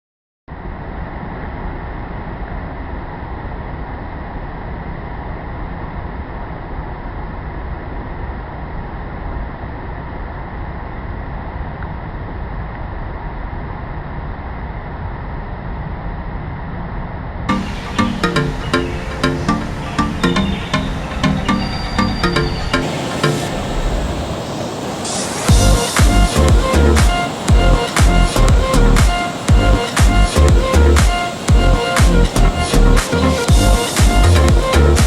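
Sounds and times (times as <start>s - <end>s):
wind: 0.5s - 35.0s
ocean surf rumble: 17.5s - 35.0s.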